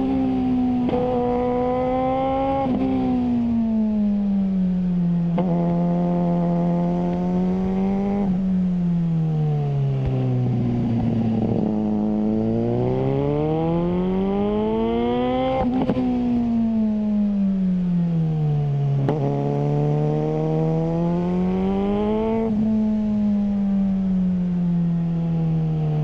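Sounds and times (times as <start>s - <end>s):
motorcycle engine revving: 0.0s - 3.6s, 5.2s - 8.6s, 9.7s - 17.2s, 18.8s - 23.8s.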